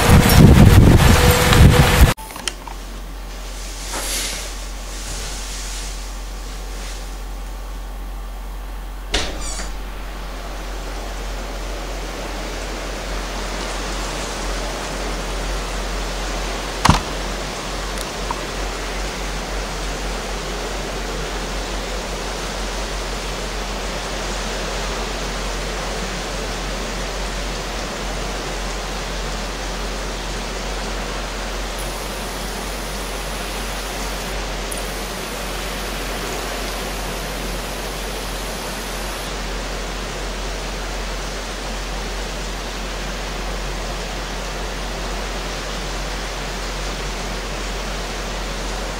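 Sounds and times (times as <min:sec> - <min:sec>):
heavy rain pouring: 0:00.0 - 0:02.2, 0:09.8 - 0:48.9
sharp click: 0:16.8 - 0:17.2.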